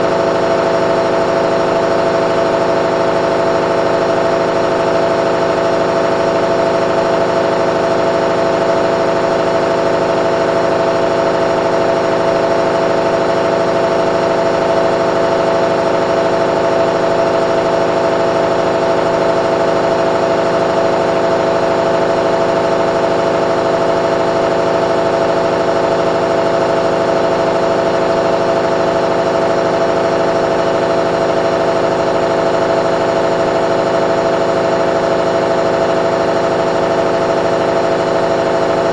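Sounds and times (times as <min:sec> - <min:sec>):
washing machine drum spinning: 0:00.1 - 0:38.9.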